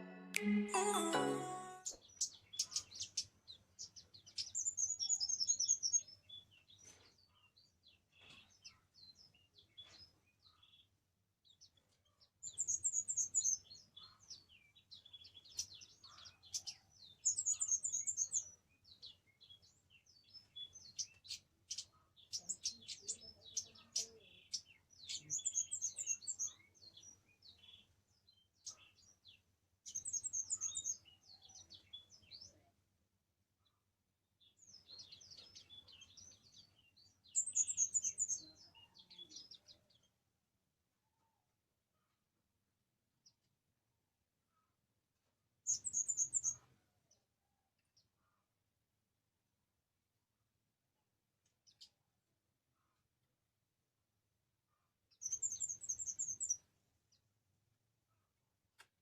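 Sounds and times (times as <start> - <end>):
songbird chirping trills: 0.0 - 6.5, 55.1 - 57.2.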